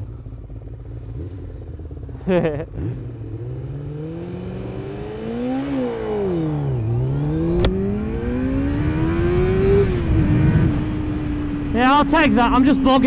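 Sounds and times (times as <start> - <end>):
motorcycle engine revving: 0.0 - 13.0
sharp click: 7.6 - 7.8.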